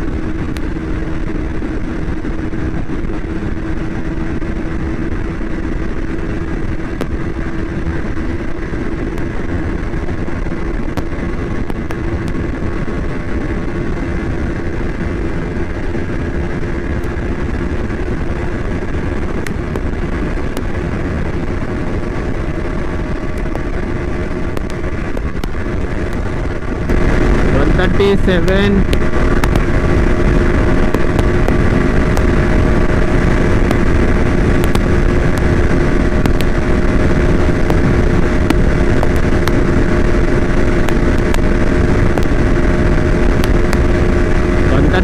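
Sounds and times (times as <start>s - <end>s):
motorcycle engine at full throttle: 0.0s - 45.0s
wind rush on microphone: 0.0s - 45.0s.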